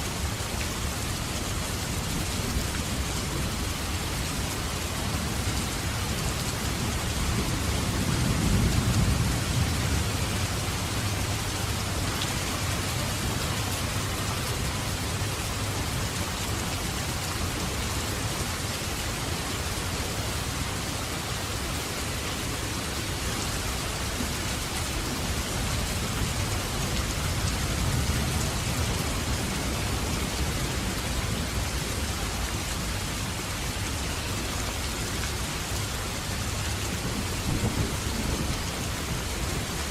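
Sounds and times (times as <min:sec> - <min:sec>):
heavy rain falling: 0:00.0 - 0:39.9
thunder rumbling: 0:06.9 - 0:12.0, 0:37.0 - 0:39.8.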